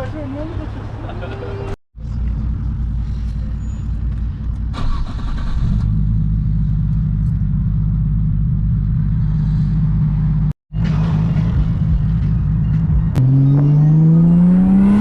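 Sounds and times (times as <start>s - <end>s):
car engine running: 2.0s - 15.0s.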